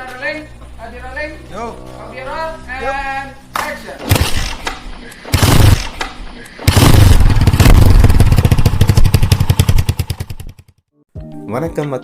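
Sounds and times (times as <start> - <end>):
motorcycle engine running: 4.1 - 10.8.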